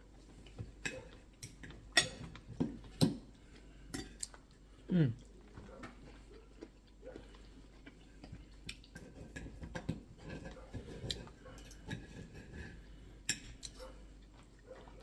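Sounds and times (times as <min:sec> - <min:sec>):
cutlery clinking on plates: 0:00.8 - 0:02.7.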